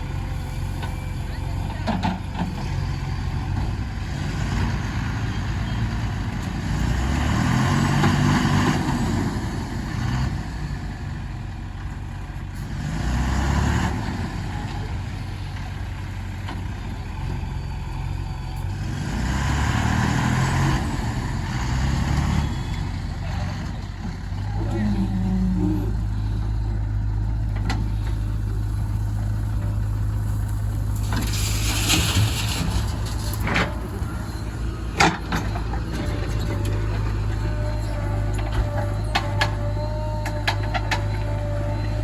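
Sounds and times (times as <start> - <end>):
diesel engine revving under load: 0.0 - 42.0.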